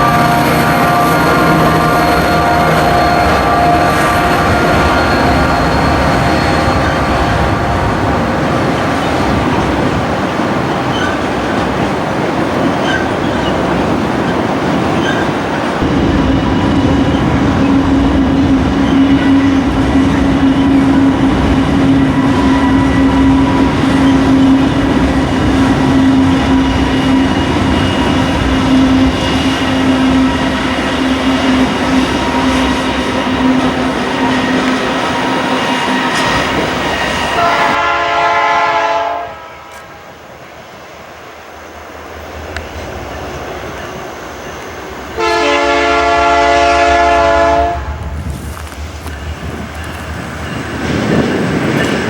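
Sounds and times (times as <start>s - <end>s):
train horn blast: 0.0s - 8.1s, 15.8s - 40.2s, 45.1s - 48.2s
freight train rumbling: 0.0s - 52.0s.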